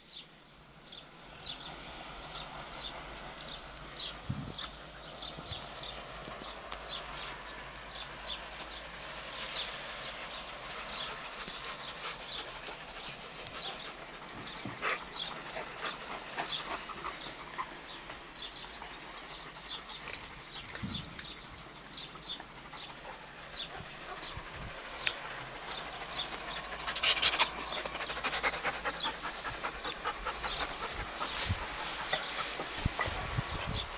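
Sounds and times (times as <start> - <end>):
steady hiss: 0.0 - 33.9
dog making sounds: 10.8 - 18.0, 21.4 - 33.9.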